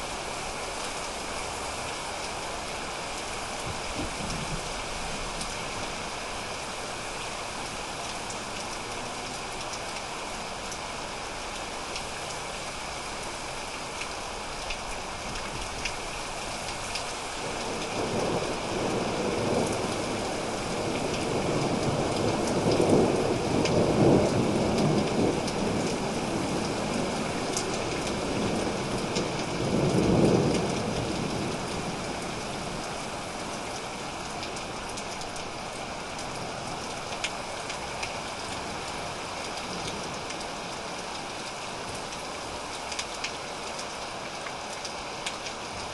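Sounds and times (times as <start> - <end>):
steady rain: 0.0 - 45.9
raindrops ticking: 13.5 - 45.9.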